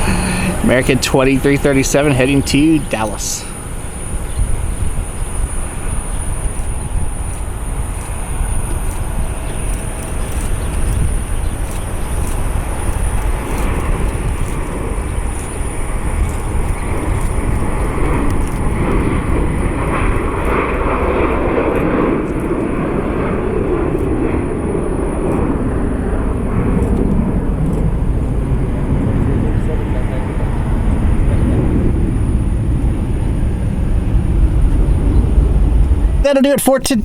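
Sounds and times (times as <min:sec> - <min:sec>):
jet engines rumbling: 0:00.0 - 0:37.0.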